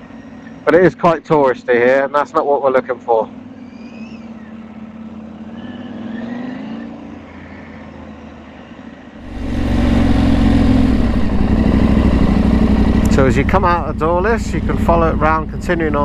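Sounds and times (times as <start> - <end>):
motorcycle engine running: 9.2 - 16.0
wind rushing over motorcycle: 9.2 - 16.0.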